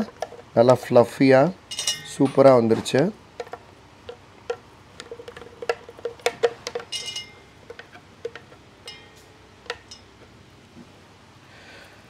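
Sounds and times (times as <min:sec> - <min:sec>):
bright metallic clink: 0:01.7 - 0:02.4, 0:06.9 - 0:07.4, 0:08.9 - 0:10.2.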